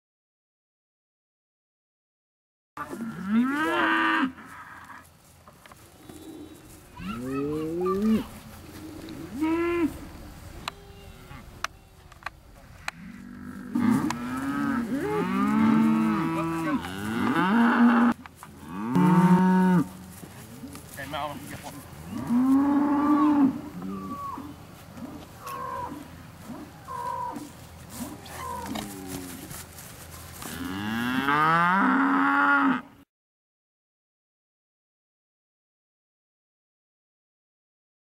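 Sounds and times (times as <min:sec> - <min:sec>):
bulls mooing: 0:02.8 - 0:05.0, 0:06.0 - 0:10.3, 0:12.8 - 0:20.8, 0:21.6 - 0:29.5, 0:30.4 - 0:33.0.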